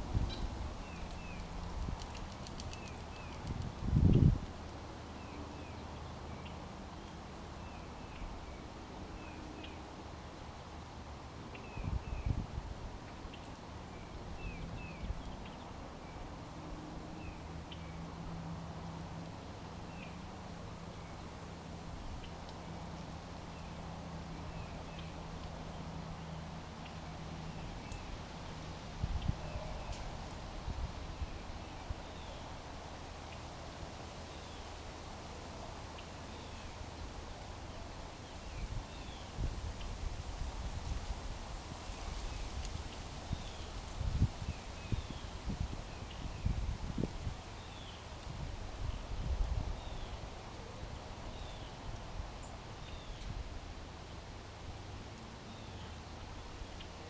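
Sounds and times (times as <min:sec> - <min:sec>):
small birds chirping: 0:00.2 - 0:04.3, 0:48.9 - 0:53.4.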